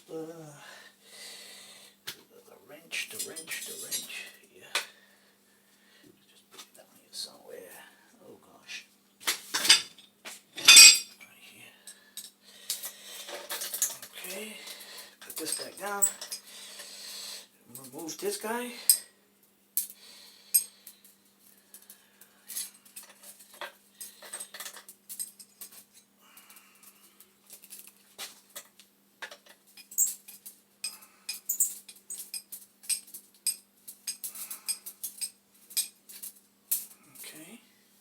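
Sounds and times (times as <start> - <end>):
metal tools clicking and clinking: 3.1 - 4.2, 9.5 - 11.1, 12.2 - 14.4, 15.2 - 16.4, 22.5 - 26.1, 28.6 - 37.0.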